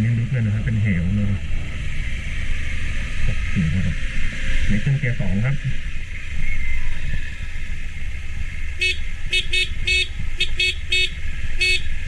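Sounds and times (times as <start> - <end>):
motorcycle engine and wind rumble: 0.0 - 12.0
high horn-like toots: 8.8 - 11.9.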